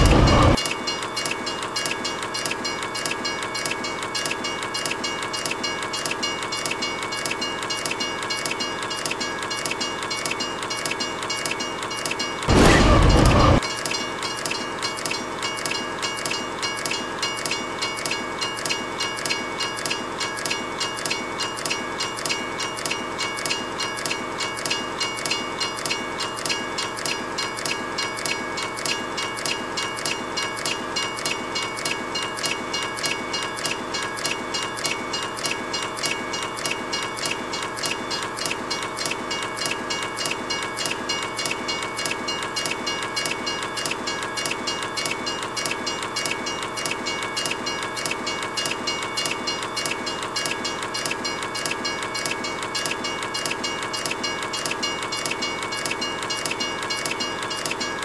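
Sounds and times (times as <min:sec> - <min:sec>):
steady high tones: 0:00.0 - 0:00.6
train wheels clattering: 0:00.0 - 0:58.0.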